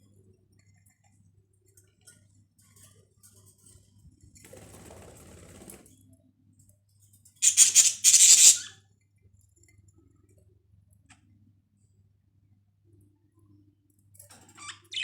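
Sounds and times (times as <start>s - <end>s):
budgerigar harsh hissy bursts: 7.4s - 8.7s.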